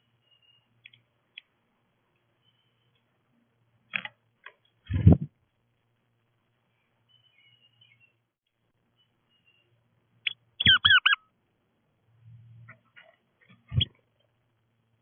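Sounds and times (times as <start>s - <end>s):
bird calling: 9.0s - 11.3s, 12.7s - 14.0s.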